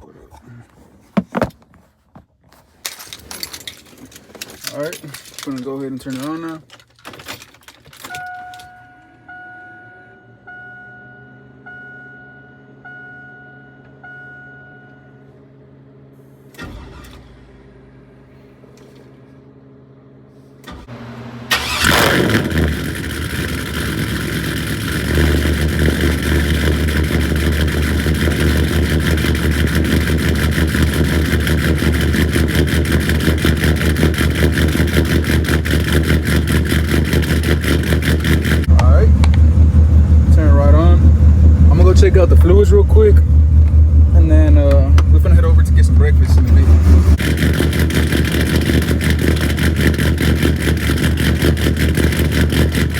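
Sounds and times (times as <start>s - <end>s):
starter cranking: 2.8s - 8.7s, 21.5s - 52.9s
dashboard warning chime: 8.0s - 15.4s
truck engine idling: 20.4s - 52.9s.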